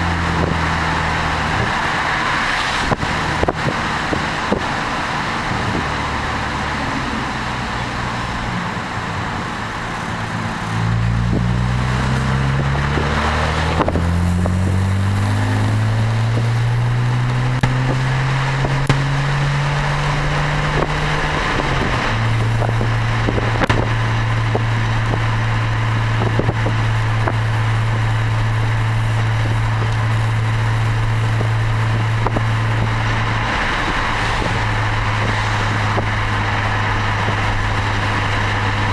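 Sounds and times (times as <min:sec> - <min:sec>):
car exhaust drone: 0:00.0 - 0:38.9.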